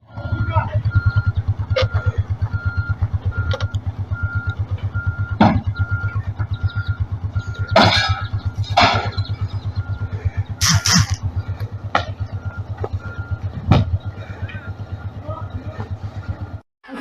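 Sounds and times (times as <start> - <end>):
engine with rapid low throb: 0.0 - 17.0
short electronic beeps: 0.1 - 11.4
sudden noisy bursts: 10.6 - 11.5.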